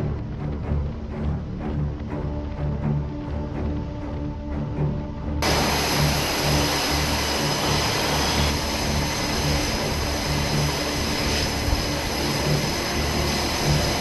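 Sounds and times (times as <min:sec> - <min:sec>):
jet engine roar with whine: 0:05.4 - 0:14.0.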